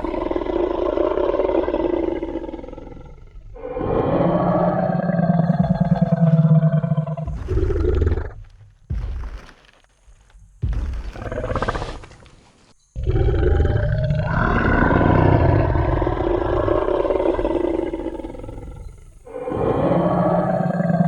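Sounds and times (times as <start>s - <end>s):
dinosaur roar: 0.0s - 8.5s, 13.0s - 21.0s.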